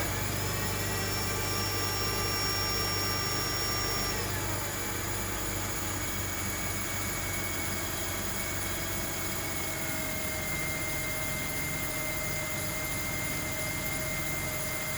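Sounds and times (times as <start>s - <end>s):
thin engine whine: 0.0s - 14.9s.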